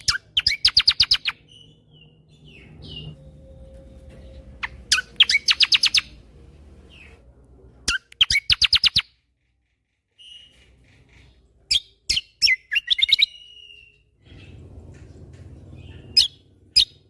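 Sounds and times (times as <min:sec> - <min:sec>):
faint low hum: 0:00.0 - 0:08.4
songbird singing: 0:00.0 - 0:17.0.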